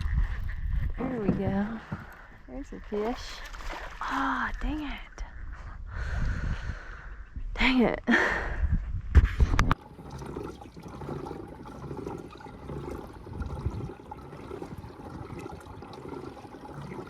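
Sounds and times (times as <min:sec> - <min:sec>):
water lapping against hull: 0:00.0 - 0:04.8, 0:09.4 - 0:17.0.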